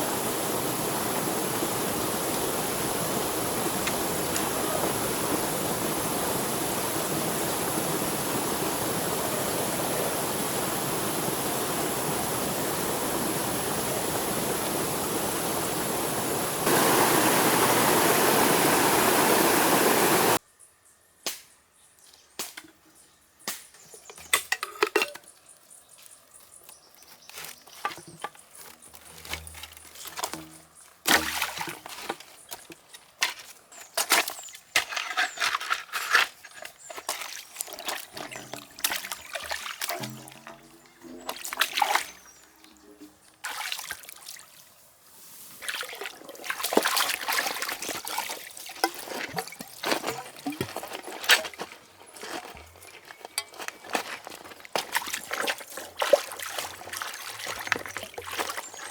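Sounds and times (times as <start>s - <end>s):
stream water rushing: 0.0s - 20.4s, 45.7s - 58.9s.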